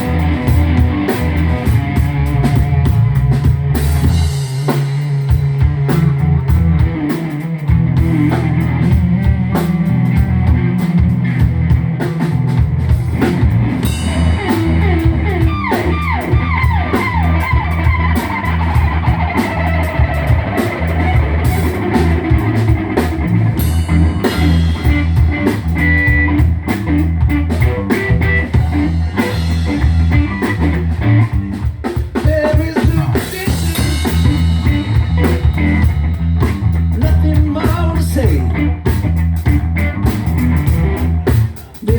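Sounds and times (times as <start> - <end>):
guitar sliding down in pitch: 0.0 - 31.6
rock band playing: 0.0 - 41.9.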